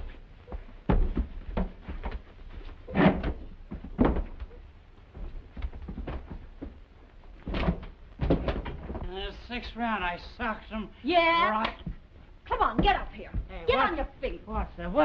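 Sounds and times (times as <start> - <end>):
knocks bangs and thumps: 0.5 - 4.6, 7.4 - 9.1, 11.8 - 14.0.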